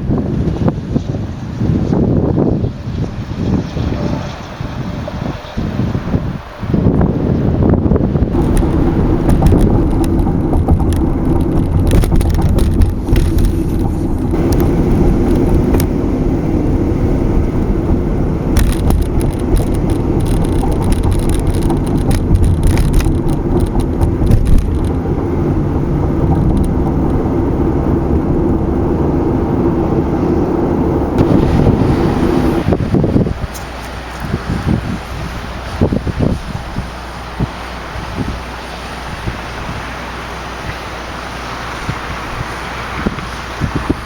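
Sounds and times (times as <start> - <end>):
car road noise: 0.0 - 44.0
light clicks and rattles: 8.4 - 15.9, 18.6 - 25.0, 25.7 - 27.2.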